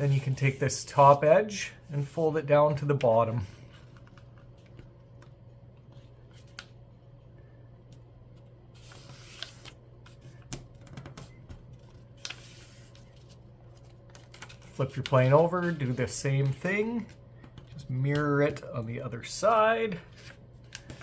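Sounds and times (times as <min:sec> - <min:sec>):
low steady hum: 0:00.0 - 0:21.0
paper rustling and creasing: 0:08.4 - 0:21.0.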